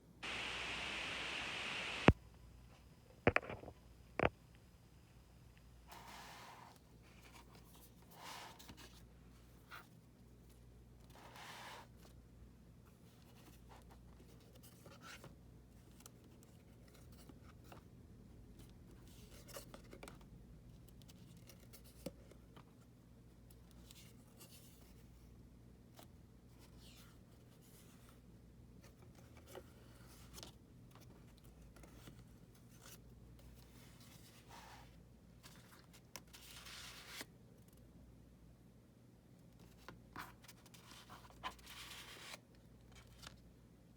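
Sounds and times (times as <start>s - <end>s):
low steady hum: 0.2s - 5.9s.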